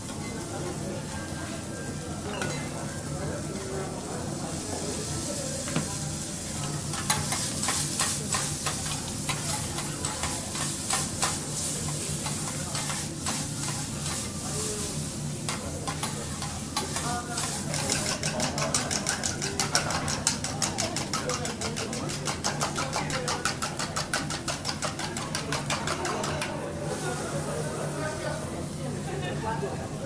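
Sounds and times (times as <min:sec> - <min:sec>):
food sizzling on a griddle: 0:00.0 - 0:30.0
spatulas tapping on griddle: 0:06.6 - 0:14.3, 0:15.4 - 0:26.6.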